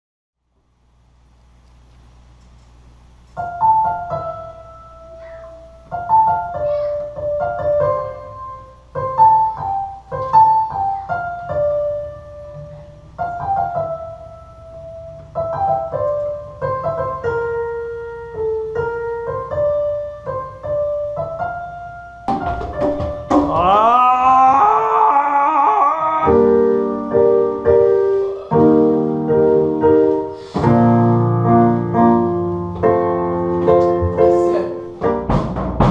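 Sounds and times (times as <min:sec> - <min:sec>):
keyboard playing melody and chords: 0:26.3 - 0:35.4.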